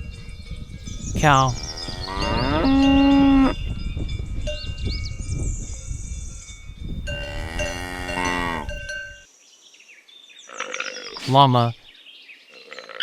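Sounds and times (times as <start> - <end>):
cowbells ringing: 0.0 - 9.3
cow mooing: 1.3 - 3.6, 7.1 - 8.9.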